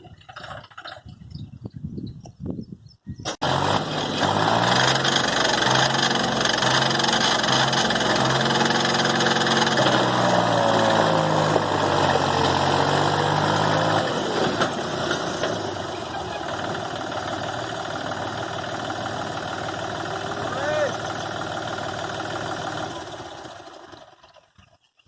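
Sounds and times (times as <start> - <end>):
tractor diesel engine under load: 0.0 - 1.4, 3.2 - 24.9.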